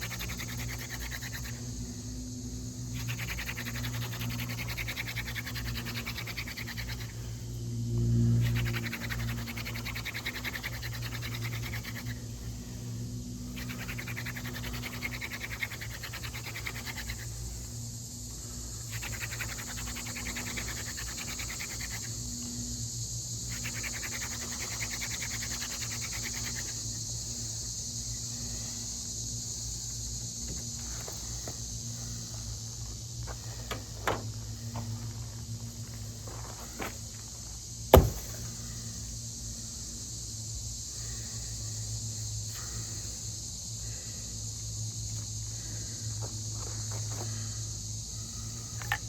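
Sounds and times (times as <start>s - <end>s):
wooden spindle rubbing in fireboard: 13.5s - 17.3s.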